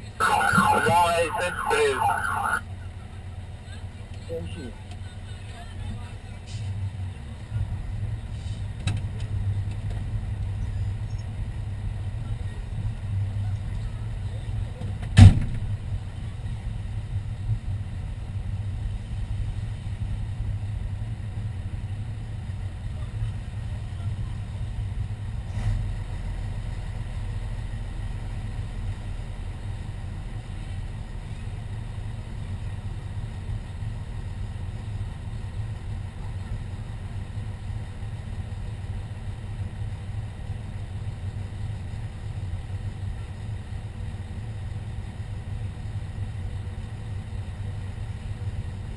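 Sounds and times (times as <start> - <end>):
truck engine idling: 0.0 - 2.6.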